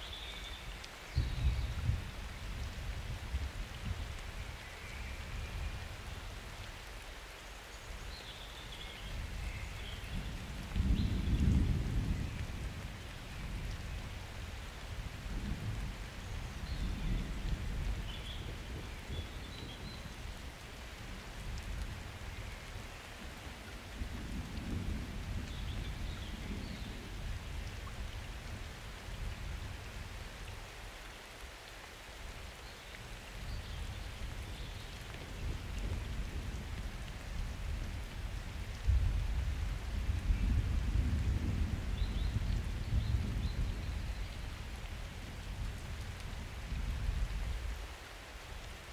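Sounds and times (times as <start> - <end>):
steady rain: 0.0 - 48.9
thunder rumbling: 38.9 - 44.1.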